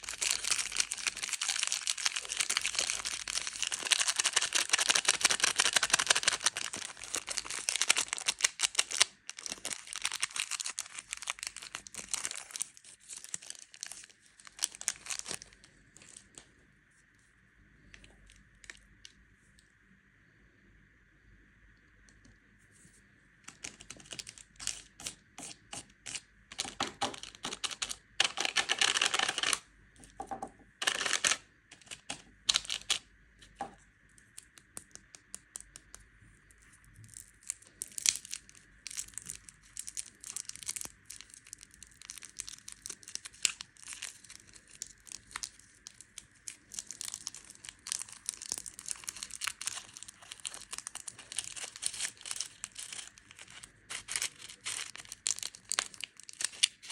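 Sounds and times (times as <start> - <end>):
plastic wrappers crinkling and tearing: 0.0 - 16.4, 23.5 - 29.6, 30.8 - 33.0, 37.0 - 56.9.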